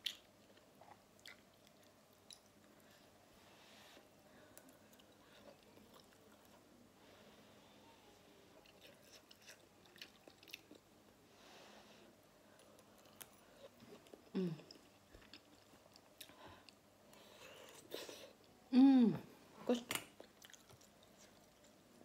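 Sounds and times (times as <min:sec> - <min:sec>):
person chewing food: 0:00.0 - 0:03.1, 0:04.5 - 0:06.6, 0:08.6 - 0:10.9, 0:12.4 - 0:18.5, 0:20.2 - 0:21.9.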